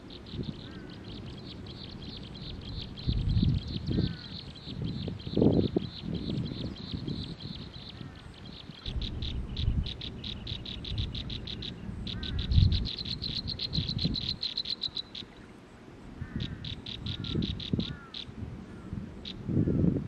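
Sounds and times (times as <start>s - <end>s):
low rumbling noise: 0.0s - 14.5s
downslurred bird chirps: 0.0s - 15.6s, 16.3s - 18.3s
birds ticking notes: 0.0s - 19.8s.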